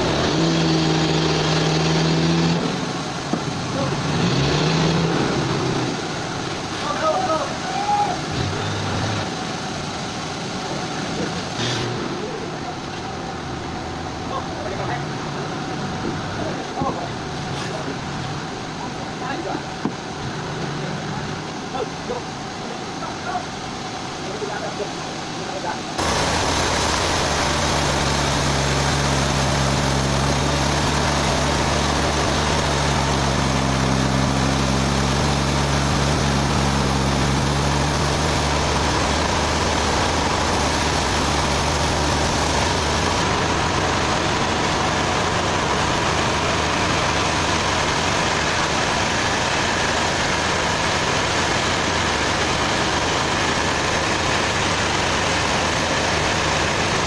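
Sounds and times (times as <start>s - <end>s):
dense machine noise: 0.0s - 57.0s
sawmill engine running: 26.0s - 57.0s.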